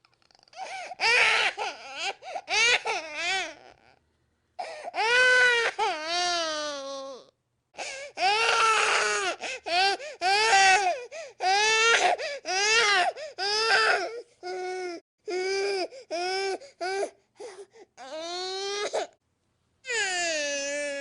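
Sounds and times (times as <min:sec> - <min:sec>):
infant crying: 0:00.3 - 0:04.0, 0:04.6 - 0:19.2, 0:19.9 - 0:21.0
infant quick breaths: 0:16.6 - 0:18.0.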